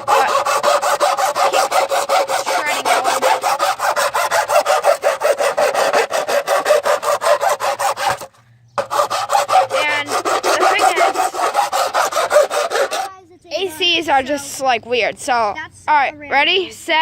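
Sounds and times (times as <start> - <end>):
hand file rasping: 0.0 - 13.1.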